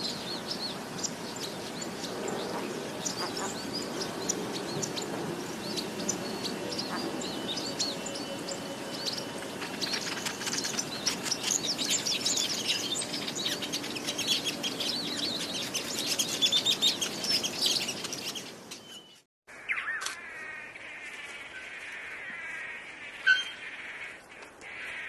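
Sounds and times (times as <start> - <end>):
many birds chirping: 0.0 - 25.0
bird call with falling whistle: 23.2 - 23.6.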